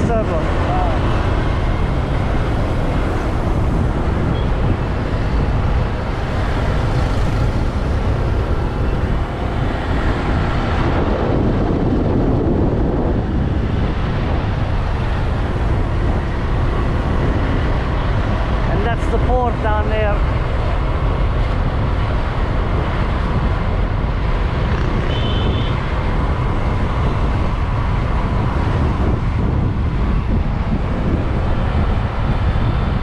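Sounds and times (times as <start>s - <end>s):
traffic: 0.0s - 33.0s
wind rushing over microphone: 0.0s - 33.0s
motorbike engine: 0.4s - 10.9s.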